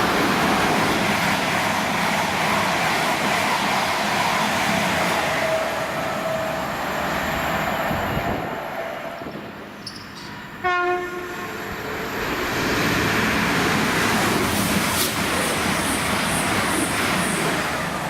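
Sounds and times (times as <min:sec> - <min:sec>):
train rushing through station: 0:00.0 - 0:18.0
train horn blast: 0:10.6 - 0:11.6.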